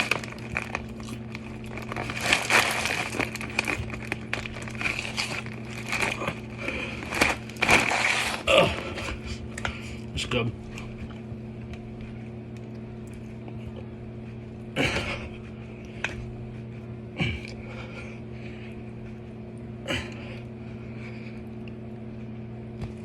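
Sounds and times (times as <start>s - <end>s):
steady low hum: 0.0s - 23.0s
man grunting with effort: 8.4s - 9.2s.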